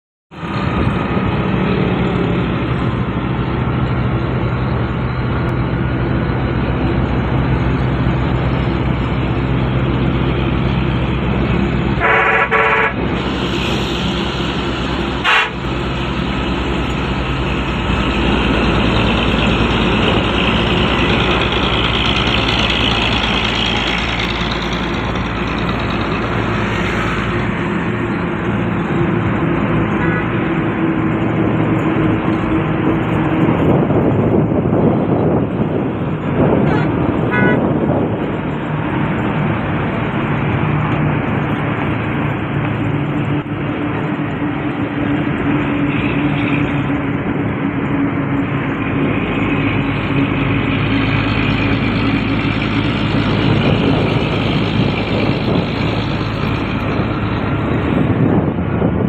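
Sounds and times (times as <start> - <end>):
truck diesel engines running hard: 0.3 - 59.0
truck horn: 11.8 - 14.1, 14.8 - 16.2, 29.9 - 30.6, 36.4 - 37.9.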